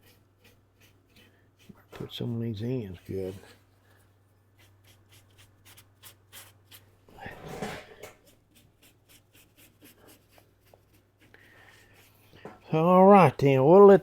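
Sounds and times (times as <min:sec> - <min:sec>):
paintbrush strokes on wood: 0:00.0 - 0:12.9.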